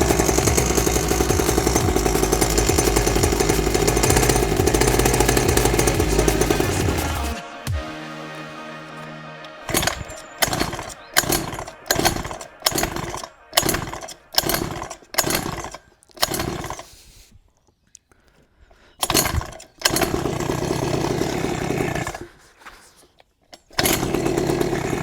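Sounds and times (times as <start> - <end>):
two-stroke engine running: 0.0 - 7.4, 9.7 - 16.9, 19.0 - 22.2, 23.8 - 25.0
two-stroke engine sputtering: 0.0 - 7.4, 9.7 - 17.0, 19.0 - 22.4, 23.7 - 25.0.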